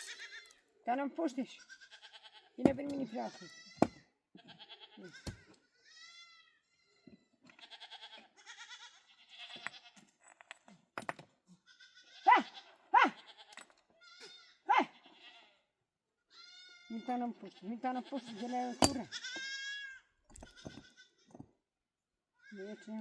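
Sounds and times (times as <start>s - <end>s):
goats or sheep bleating: 0.0s - 0.6s, 1.5s - 10.0s, 11.6s - 15.7s, 16.3s - 21.3s.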